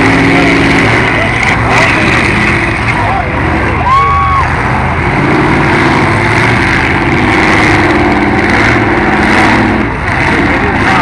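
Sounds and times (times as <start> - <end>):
car engines running loudly: 0.0 - 11.0.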